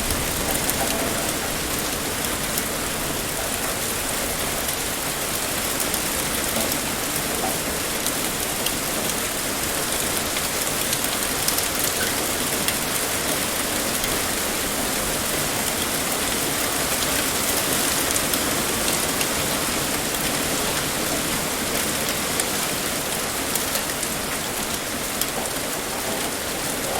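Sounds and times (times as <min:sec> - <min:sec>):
heavy rain pouring: 0:00.0 - 0:26.9.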